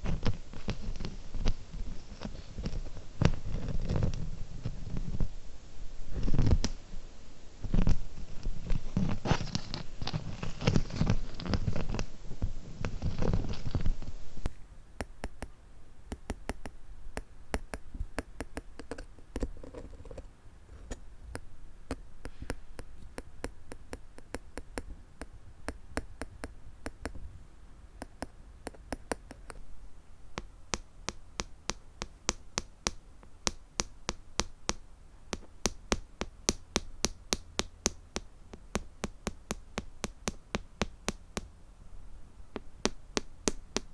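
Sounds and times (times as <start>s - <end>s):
dull handling sound: 14.5s - 27.4s
fingernails tapping on plastic gems: 15.0s - 27.3s, 28.0s - 29.6s, 30.4s - 41.6s, 42.5s - 43.9s.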